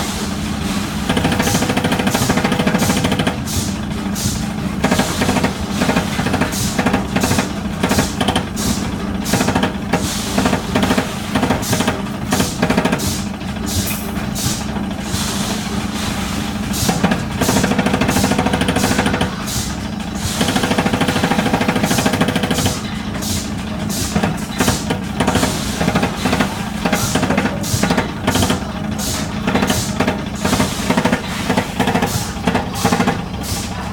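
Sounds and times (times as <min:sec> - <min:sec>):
motor hum: 0:00.0 - 0:33.9
rapid chopping strokes: 0:00.8 - 0:33.8.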